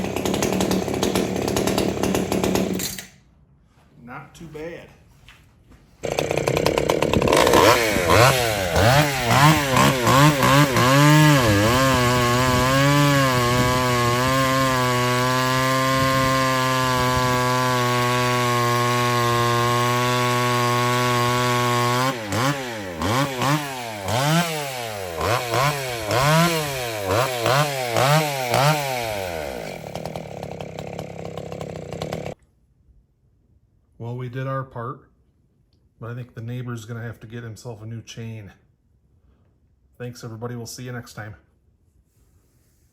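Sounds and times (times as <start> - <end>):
chainsaw engine revving: 0.0 - 3.2, 6.0 - 32.4.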